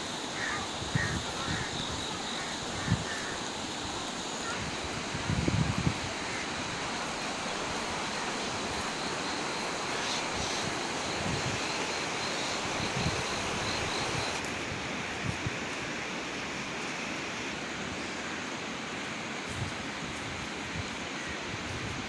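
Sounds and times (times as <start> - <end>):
river water rushing: 0.0 - 22.0
wind buffeting microphone: 0.7 - 9.0.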